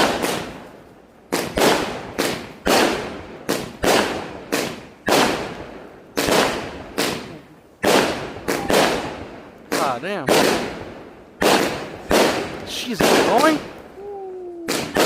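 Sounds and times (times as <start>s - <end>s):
firework bangs with echo: 0.0s - 14.0s, 14.7s - 15.0s.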